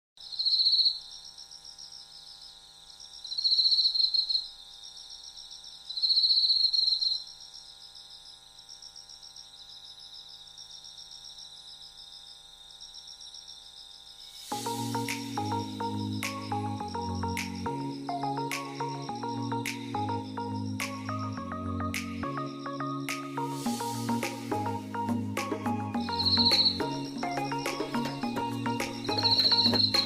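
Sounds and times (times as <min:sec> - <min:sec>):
insects trilling: 0:00.2 - 0:30.0
music: 0:14.5 - 0:30.0.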